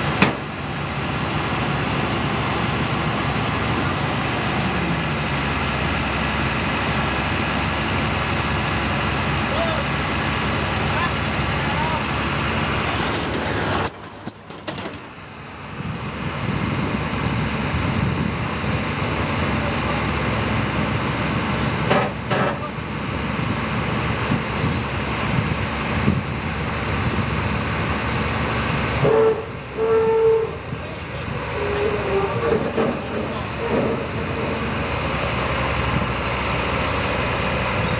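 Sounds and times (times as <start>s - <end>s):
heavy machinery engine rumble: 0.0s - 37.9s
short pitched horn tone: 29.0s - 30.8s.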